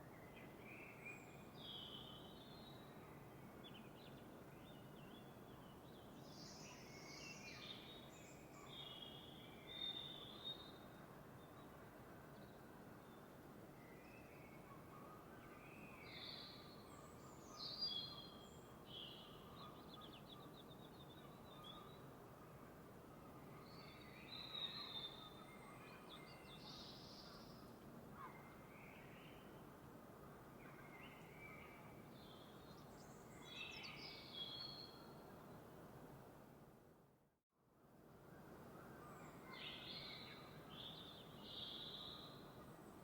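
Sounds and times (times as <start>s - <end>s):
soft steady hiss: 37.7s - 43.0s.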